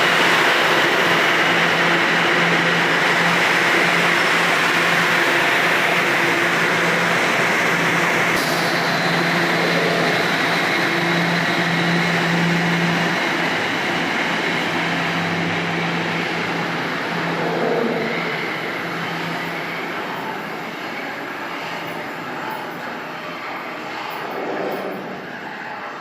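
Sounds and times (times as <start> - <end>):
subway train rumbling: 0.0 - 26.0
low hum: 15.4 - 26.0.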